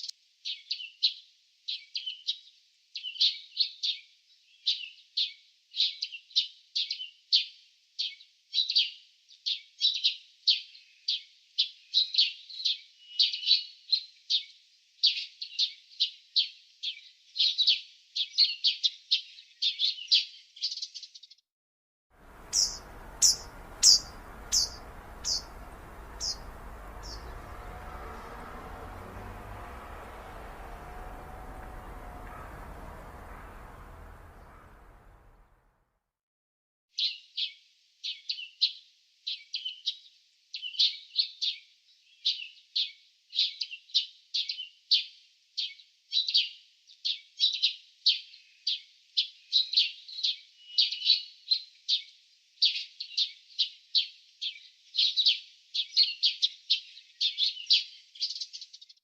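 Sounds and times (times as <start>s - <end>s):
steady outdoor hiss: 22.2s - 35.5s
songbird chirping: 22.2s - 35.6s
thin very high bird chirps: 22.3s - 27.5s.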